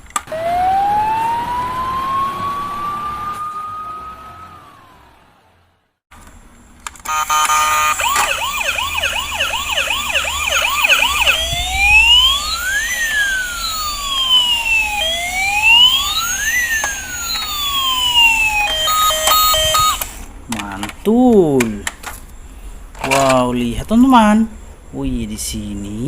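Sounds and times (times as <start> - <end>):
toy police siren: 0.3 - 5.5, 7.0 - 20.1.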